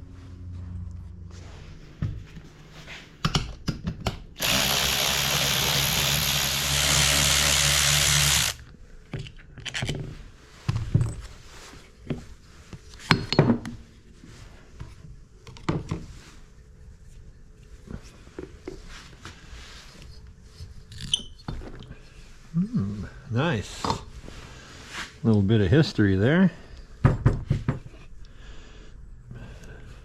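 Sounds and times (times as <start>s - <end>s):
power drill running: 4.4s - 8.6s.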